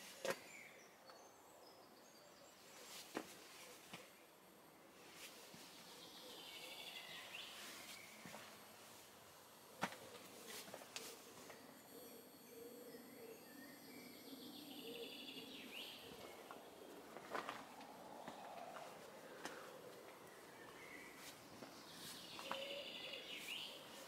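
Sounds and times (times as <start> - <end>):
songbird trilling: 11.8 - 17.0.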